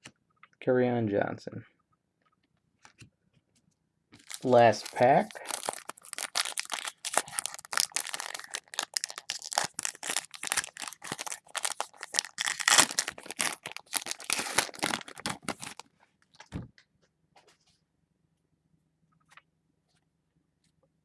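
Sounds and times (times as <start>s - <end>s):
card pack wrapper crinkling and tearing: 4.2s - 16.5s.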